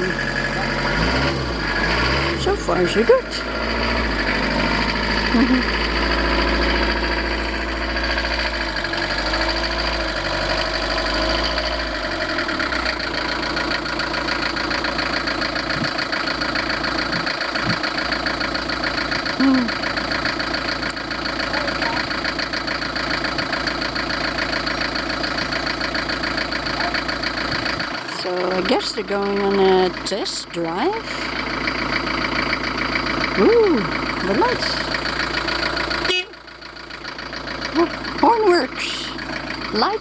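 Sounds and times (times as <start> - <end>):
van engine idling: 0.0 - 40.0.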